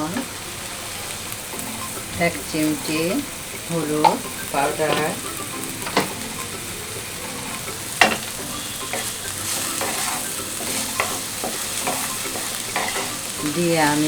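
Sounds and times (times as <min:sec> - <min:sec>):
vegetables sizzling in oil: 0:00.0 - 0:14.0
spatula clicking against pan: 0:03.5 - 0:14.0.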